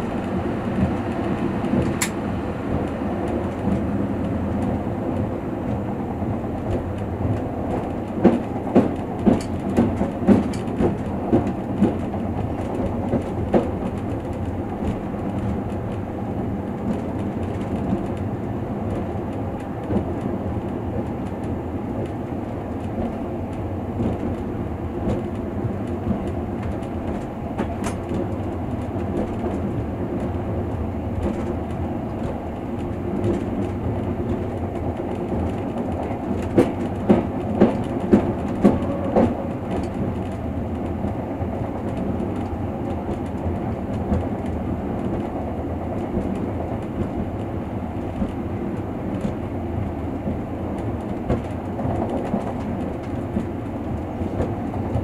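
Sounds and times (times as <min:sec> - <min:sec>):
train wheels rumbling: 0:00.0 - 0:55.0
wheels clacking over track: 0:18.9 - 0:49.4.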